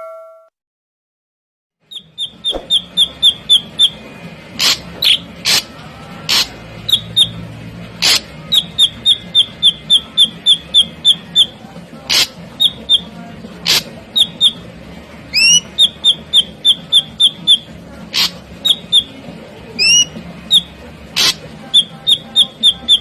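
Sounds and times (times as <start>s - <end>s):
bird harsh notes: 1.9s - 14.6s, 15.3s - 19.2s, 19.8s - 23.0s
bird calling high notes: 15.3s - 19.2s, 19.8s - 23.0s.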